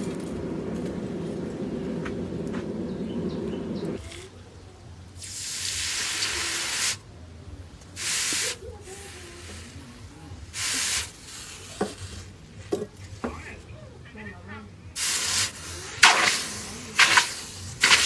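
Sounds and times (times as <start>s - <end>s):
hot steel hissing in water: 5.2s - 7.0s, 8.0s - 12.4s, 15.0s - 18.0s.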